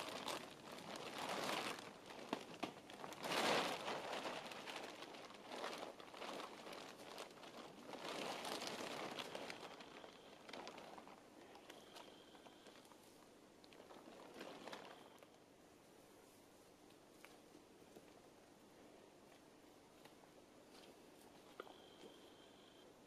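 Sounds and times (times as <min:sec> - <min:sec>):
plastic tarp crinkling: 0:00.0 - 0:15.5.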